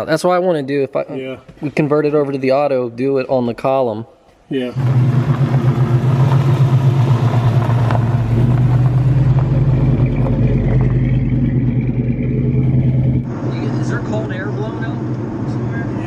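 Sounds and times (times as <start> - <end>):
car engine running: 4.3 - 16.0.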